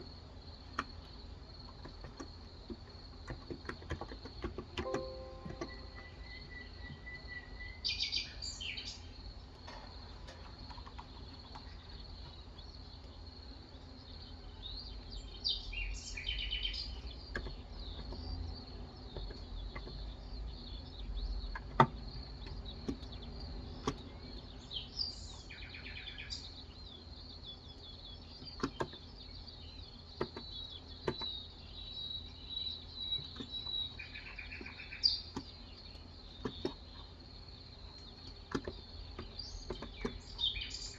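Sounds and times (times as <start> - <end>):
birds chirping: 0.1 - 40.9
keyboard key clicks: 3.3 - 6.1
steady high-pitched tone: 4.9 - 6.8.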